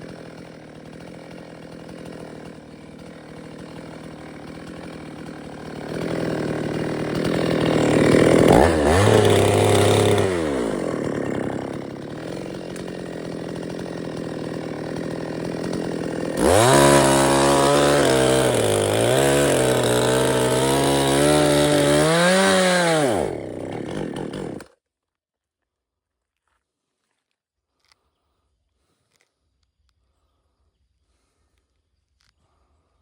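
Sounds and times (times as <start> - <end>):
chainsaw revving and idling: 0.0 - 24.8.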